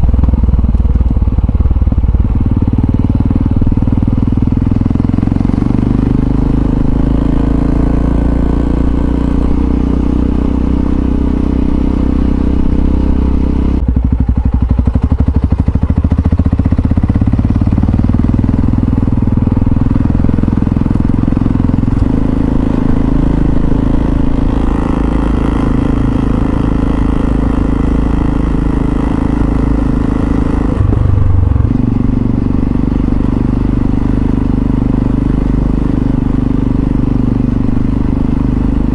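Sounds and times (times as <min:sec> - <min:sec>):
single-cylinder motorcycle engine: 0:00.0 - 0:38.9.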